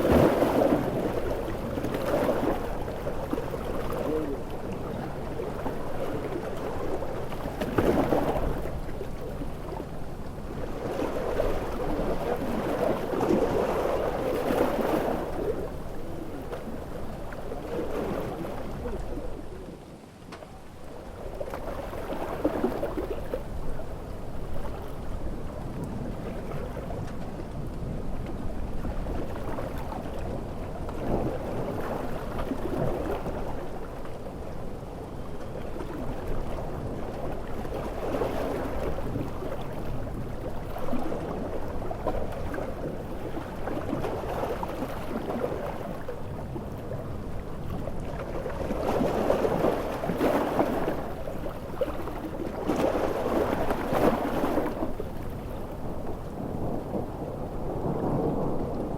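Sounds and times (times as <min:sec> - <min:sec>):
ocean waves breaking: 0:00.0 - 0:19.8, 0:35.7 - 0:58.9
rushing water noise: 0:00.0 - 0:20.2, 0:28.4 - 0:58.9.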